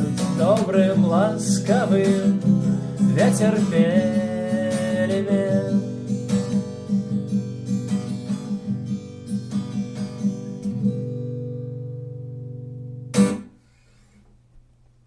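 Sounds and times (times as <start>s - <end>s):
acoustic guitar strumming: 0.0s - 14.2s.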